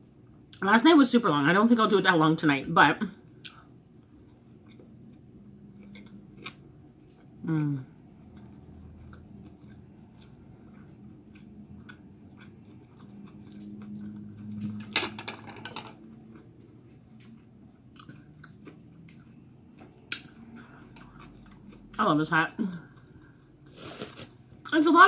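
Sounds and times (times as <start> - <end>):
person chewing: 3.3 - 14.8, 16.0 - 22.0, 22.8 - 24.6.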